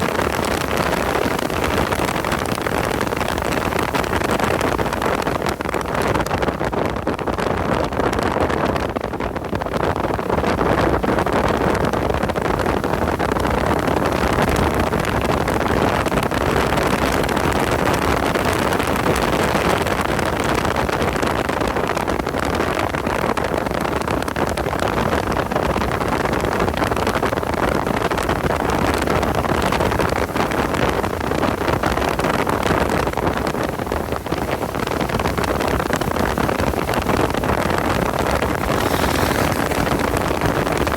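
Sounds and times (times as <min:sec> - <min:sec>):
wind noise: 0:00.0 - 0:40.9
car engine at speed: 0:38.1 - 0:40.9.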